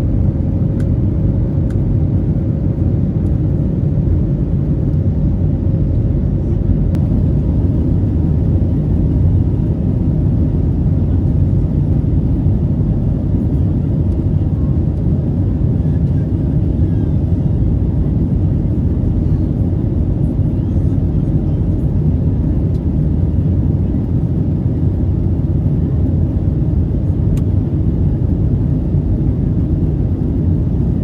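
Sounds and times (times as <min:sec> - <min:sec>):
airplane cabin engine rumble: 0:00.0 - 0:31.0
airflow noise: 0:06.1 - 0:19.8.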